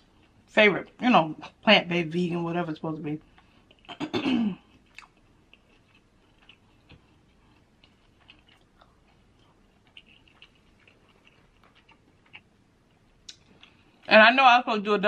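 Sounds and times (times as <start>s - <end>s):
person chewing wet food: 3.2s - 3.9s, 4.6s - 14.1s.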